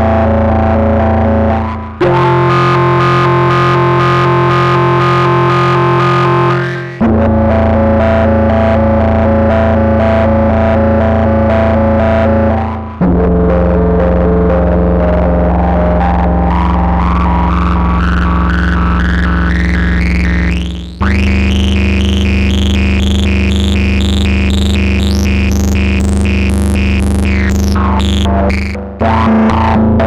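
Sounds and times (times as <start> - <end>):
held synthesizer bass note: 0.0 - 30.0
fast repeating synthesizer pattern: 2.1 - 7.0, 16.8 - 29.7.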